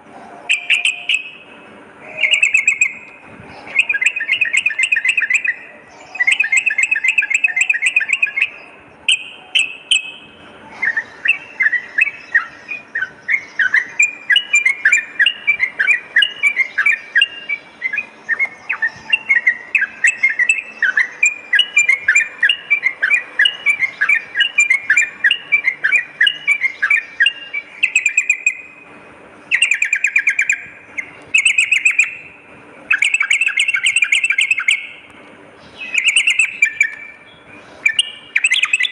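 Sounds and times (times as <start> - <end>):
bird bubbly chattering: 10.8 - 28.7, 32.9 - 35.0, 35.8 - 38.9.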